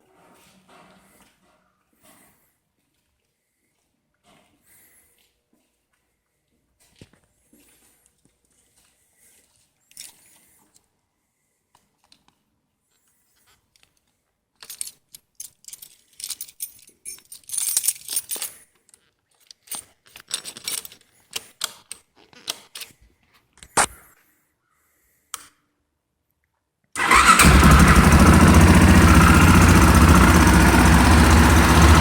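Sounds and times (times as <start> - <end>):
small metal parts clicking and jingling: 9.9 - 10.4, 13.7 - 22.9.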